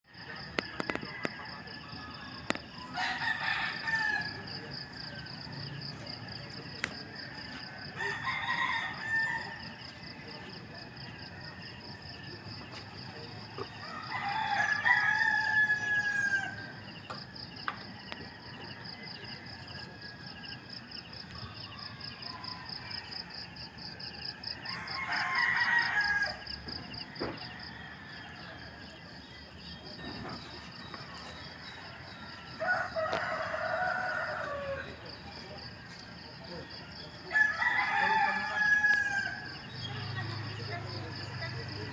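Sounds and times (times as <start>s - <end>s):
rooster crowing: 0.4s - 5.4s, 7.1s - 10.0s, 13.6s - 17.0s, 21.3s - 29.0s, 31.2s - 35.2s, 36.7s - 41.2s.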